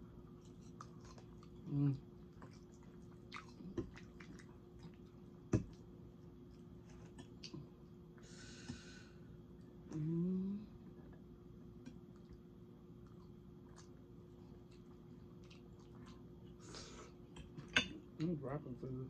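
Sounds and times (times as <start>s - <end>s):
chewing and mouth noises: 0.1s - 7.9s, 11.8s - 17.8s
person humming mmm: 9.9s - 10.8s.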